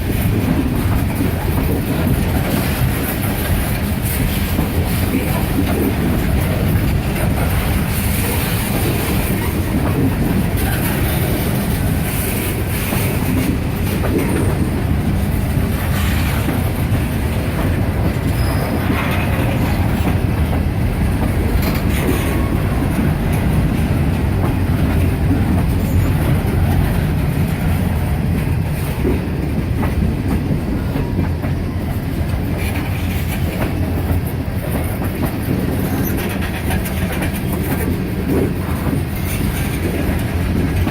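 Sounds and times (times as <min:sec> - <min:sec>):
freight train rumbling: 0:00.0 - 0:40.9
wheels clicking over rail joints: 0:00.0 - 0:40.9
wheel squeal: 0:18.3 - 0:19.2.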